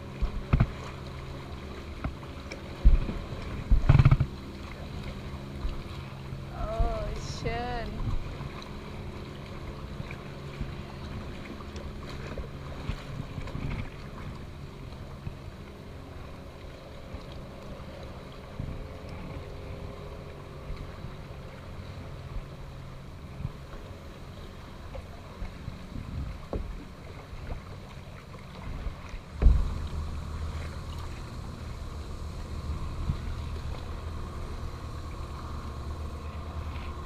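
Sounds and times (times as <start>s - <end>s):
boat engine droning: 0.0s - 37.0s
wind noise on microphone: 2.8s - 4.3s, 25.5s - 26.8s, 28.6s - 37.0s.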